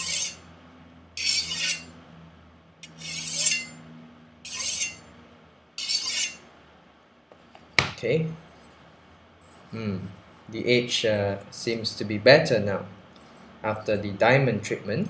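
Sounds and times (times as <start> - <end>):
knife scraping on whetstone: 0.0 - 0.4, 1.2 - 1.9, 2.8 - 3.8, 4.5 - 5.0, 5.8 - 6.4.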